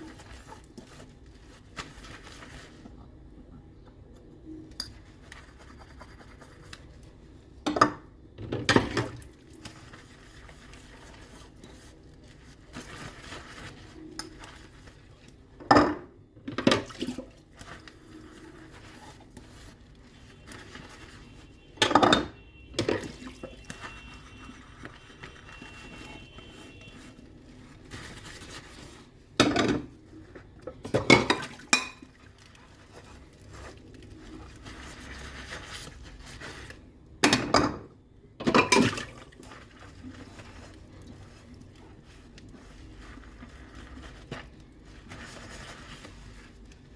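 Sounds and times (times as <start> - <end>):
dish handling sounds: 29.4 - 29.9, 30.7 - 32.1, 37.2 - 39.3
dishes and cutlery clattering: 30.8 - 32.1, 37.3 - 39.1.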